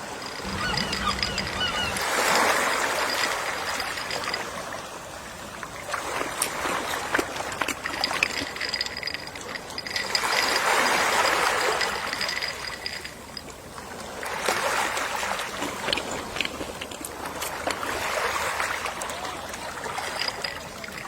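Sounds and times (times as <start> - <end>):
sea waves washing onto shore: 13.6 - 21.0.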